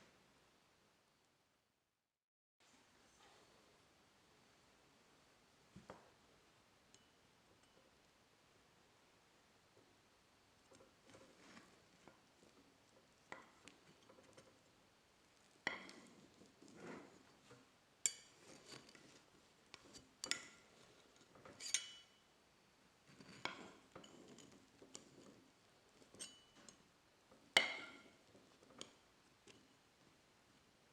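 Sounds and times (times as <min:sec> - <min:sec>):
soft handling sounds: 0:10.5 - 0:22.0, 0:23.0 - 0:30.7
dishes and utensils clinking: 0:19.8 - 0:22.2, 0:26.0 - 0:26.8.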